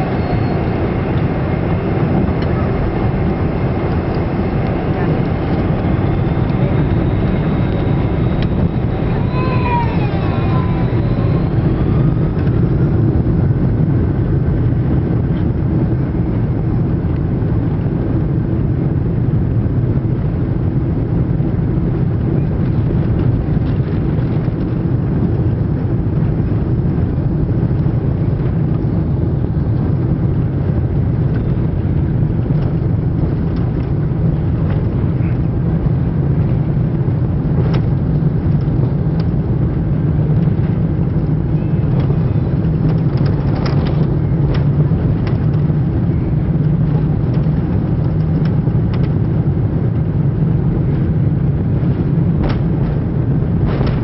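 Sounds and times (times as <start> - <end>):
faint gliding whine: 0.0 - 14.1
jet engines roaring in cabin: 0.0 - 54.0.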